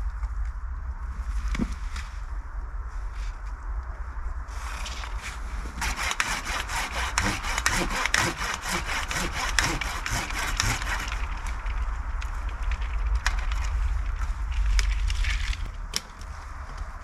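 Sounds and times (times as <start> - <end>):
hand saw cutting wood: 5.8 - 11.3.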